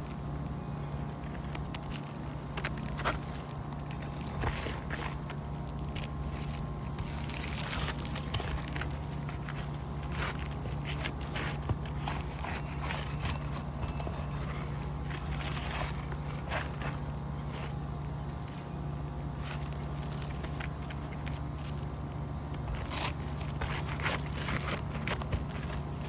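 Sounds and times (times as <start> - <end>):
steady low hum: 0.0 - 26.0
shingles scraping and crackling: 1.0 - 22.0, 22.6 - 26.0.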